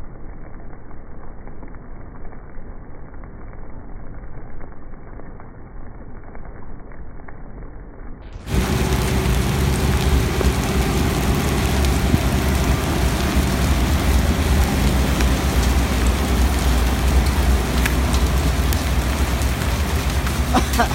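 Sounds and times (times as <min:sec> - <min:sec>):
heavy rain: 0:08.3 - 0:20.9.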